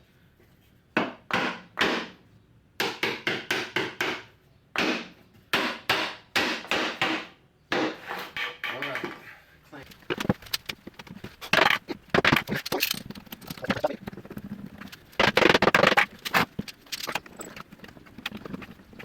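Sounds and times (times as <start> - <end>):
wooden parts and tools clattering: 7.9 - 19.0.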